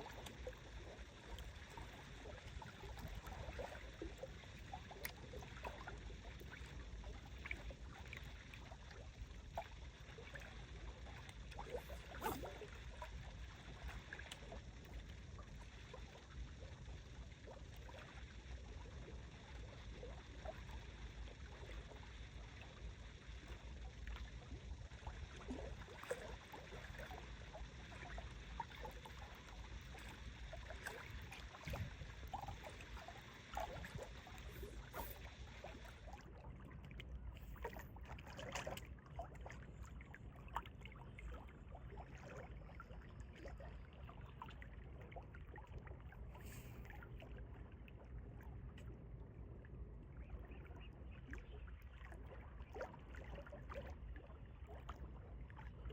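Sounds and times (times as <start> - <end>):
wind rumbling on microphone: 31.6 - 32.1.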